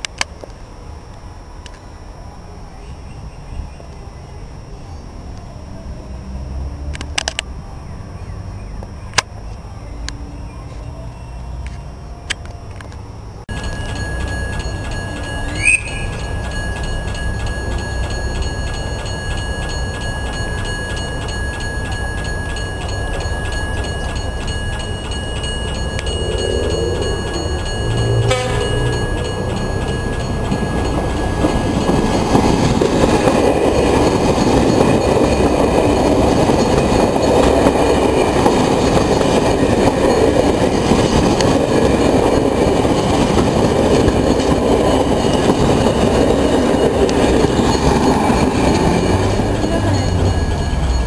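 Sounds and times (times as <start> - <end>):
train wheels rumbling on rails: 13.5 - 51.0
train horn: 28.2 - 28.9.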